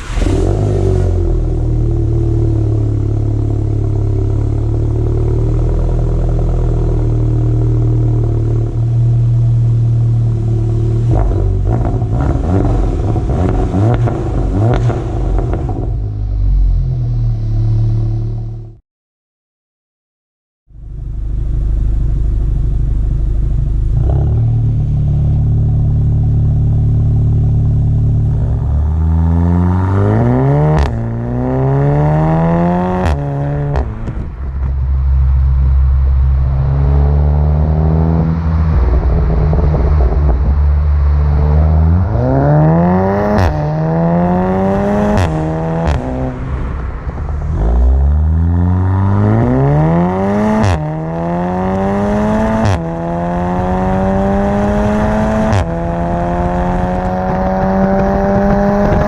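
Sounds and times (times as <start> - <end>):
car engine accelerating: 0.0 - 18.8, 20.8 - 59.0
exhaust cracks: 11.0 - 18.8, 33.0 - 51.1.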